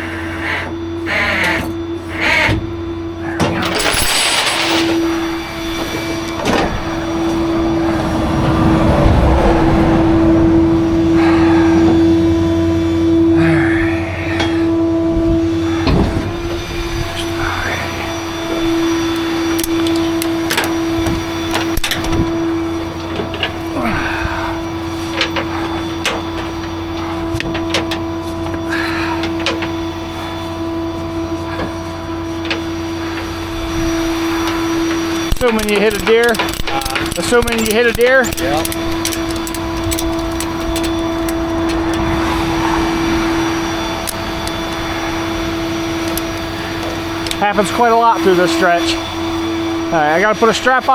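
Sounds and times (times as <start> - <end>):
hydraulic system whine: 0.0 - 50.9
metal clanks and clicks: 19.2 - 22.2, 24.5 - 28.6, 35.2 - 42.2.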